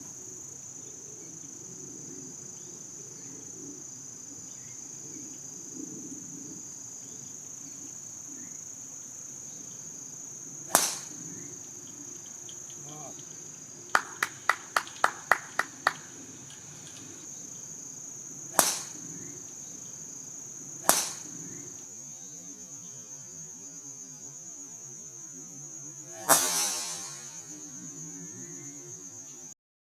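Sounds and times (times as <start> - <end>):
high insect drone: 0.0 - 29.6
golf club striking ball: 10.7 - 11.2, 18.5 - 19.0, 20.8 - 21.4, 26.2 - 27.4
sharp cracks: 10.7 - 11.2, 12.4 - 17.3, 18.5 - 19.1, 20.8 - 21.4, 26.1 - 27.8.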